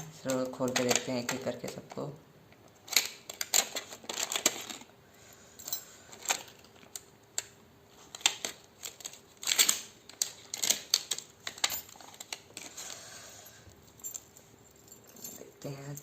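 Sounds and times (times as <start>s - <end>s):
packets rustling: 2.9s - 5.0s, 7.9s - 15.2s
keychains clinking: 5.6s - 6.6s, 11.6s - 12.2s, 13.4s - 16.0s.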